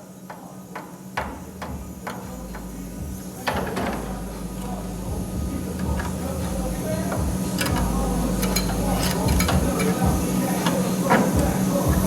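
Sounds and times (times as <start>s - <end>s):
welding arc crackling: 1.3s - 12.0s
low hum: 1.8s - 10.2s.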